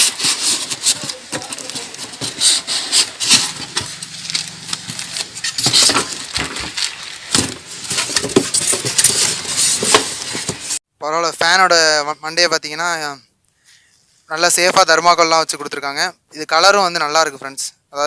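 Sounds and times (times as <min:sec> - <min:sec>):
cardboard packaging rustling: 0:00.0 - 0:10.8.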